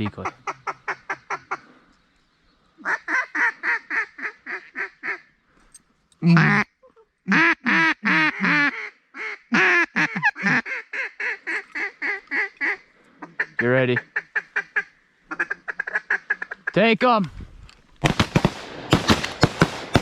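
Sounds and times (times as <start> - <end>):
duck call quacks: 0.0 - 1.7, 2.8 - 5.3, 6.2 - 6.7, 7.3 - 16.8.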